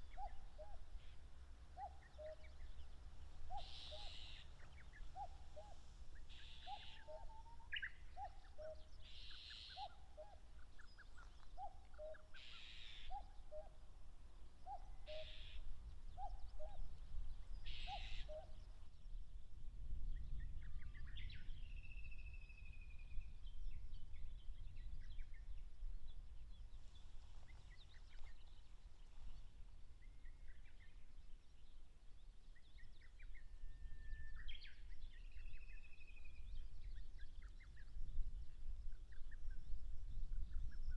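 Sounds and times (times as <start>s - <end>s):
cuckoo calling: 0.0s - 1.2s, 1.8s - 13.8s, 14.6s - 16.9s, 17.6s - 18.6s
small birds chirping: 0.0s - 19.2s, 23.5s - 33.5s
low wind rumble: 13.8s - 40.9s.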